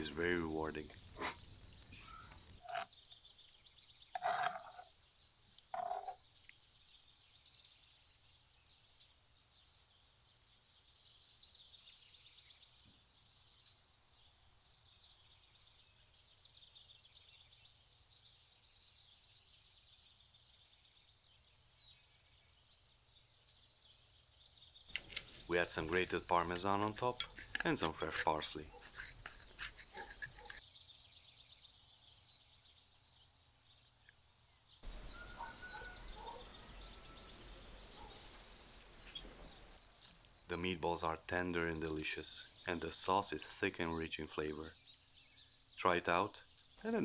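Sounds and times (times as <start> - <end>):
chirping and trilling animal calls: 2.0 - 3.0, 34.8 - 38.4
utensils clinking: 24.9 - 30.6, 39.0 - 39.6.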